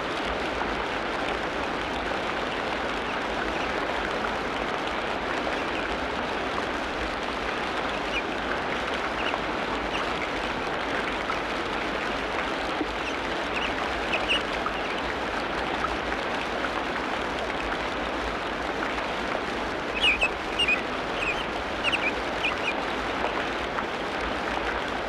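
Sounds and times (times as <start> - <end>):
rain hissing: 18.0 - 24.4.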